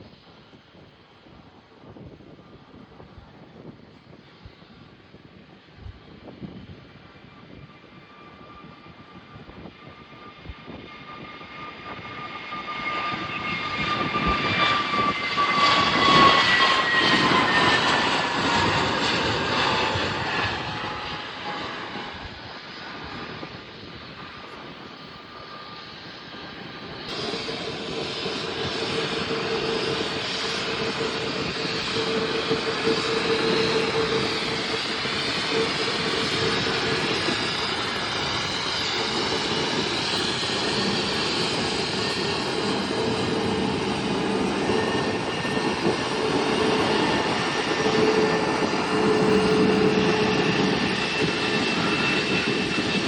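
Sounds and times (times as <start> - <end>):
aeroplane passing by: 0.1 - 53.0
steady engine hum: 27.1 - 53.0.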